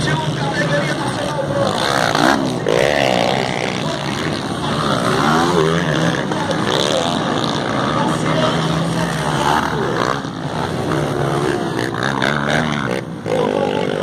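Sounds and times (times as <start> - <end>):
motocross bike engines revving: 0.0 - 14.0.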